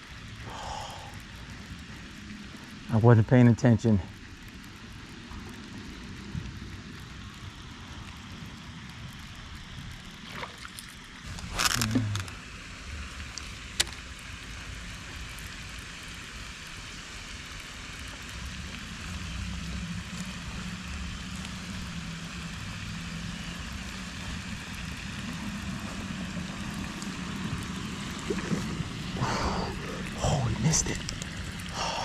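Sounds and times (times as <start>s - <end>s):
distant engine hum: 0.0s - 32.0s
outdoor hiss: 0.0s - 32.0s.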